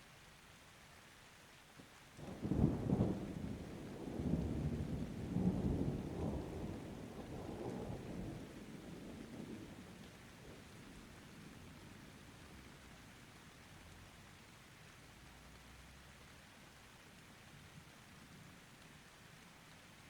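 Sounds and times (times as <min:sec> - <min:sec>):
thunder rumbling: 0:02.3 - 0:09.9.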